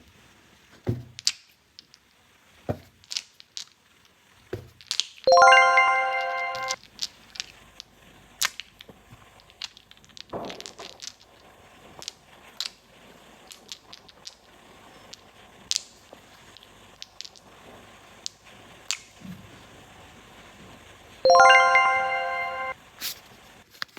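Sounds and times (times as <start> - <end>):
rustle: 0.0 - 5.3, 6.8 - 21.2, 22.9 - 23.9
electronic toy chime: 5.3 - 6.8, 21.3 - 22.8.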